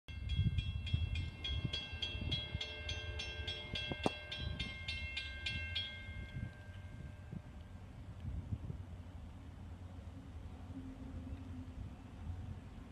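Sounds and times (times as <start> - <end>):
crossing bell ringing rapidly: 0.1 - 7.5
passing train rumble: 0.1 - 12.9.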